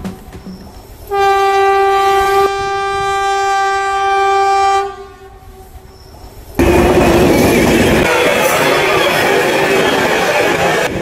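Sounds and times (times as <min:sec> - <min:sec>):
train passing close: 0:00.0 - 0:11.0
train horn: 0:01.1 - 0:05.8.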